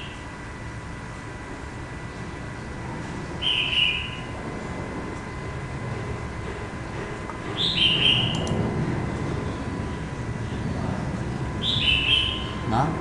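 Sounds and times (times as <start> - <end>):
steady low rumble: 4.2 - 13.0.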